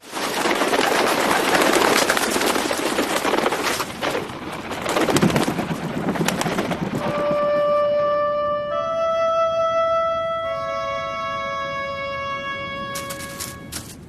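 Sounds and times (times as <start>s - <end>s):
held musical note: 7.0s - 14.0s.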